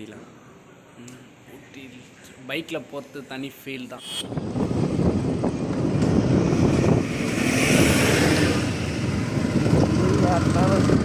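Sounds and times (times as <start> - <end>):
wind rushing over microphone: 4.2 - 11.0
motorcycle engine and tyre rumble: 4.4 - 11.0.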